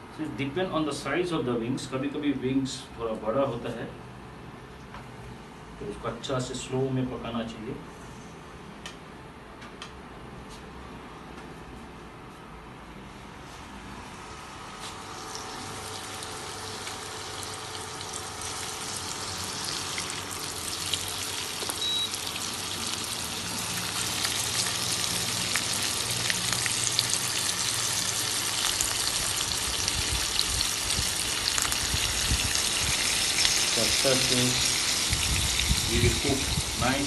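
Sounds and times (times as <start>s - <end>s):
chicken frying in hot oil: 14.6s - 37.0s
oil crackling and popping: 15.1s - 36.5s.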